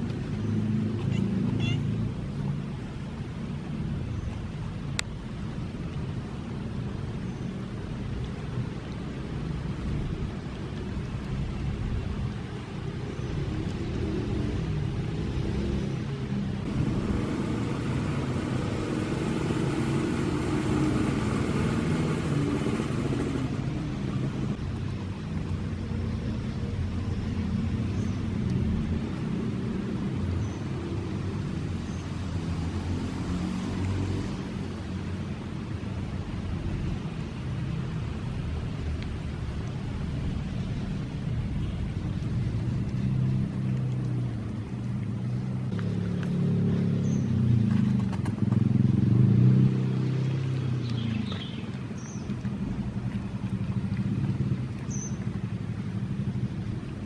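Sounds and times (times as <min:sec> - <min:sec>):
street traffic rumbling: 0:00.0 - 0:57.0
vehicle passing close by: 0:13.9 - 0:24.6, 0:28.5 - 0:35.6, 0:45.1 - 0:57.0.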